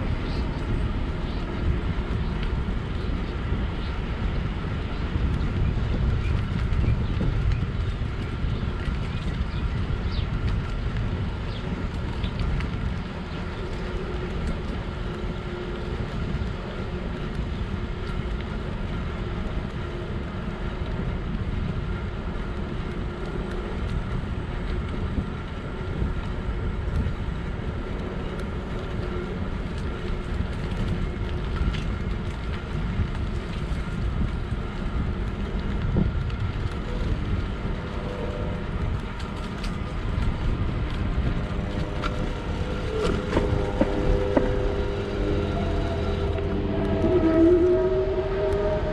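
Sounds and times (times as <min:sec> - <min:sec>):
bike tyre rumble: 0:00.0 - 0:48.9
wind rush: 0:00.0 - 0:48.9
faint steady tones: 0:12.2 - 0:48.9.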